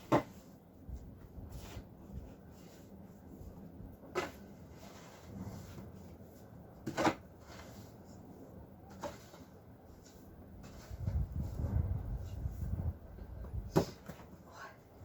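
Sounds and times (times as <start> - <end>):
low steady rumble: 9.8 - 13.7.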